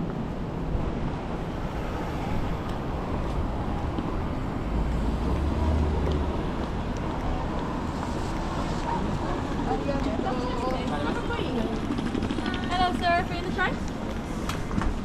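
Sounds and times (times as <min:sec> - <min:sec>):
steady traffic noise: 0:00.0 - 0:15.0
passing vehicle rumble: 0:00.1 - 0:11.8.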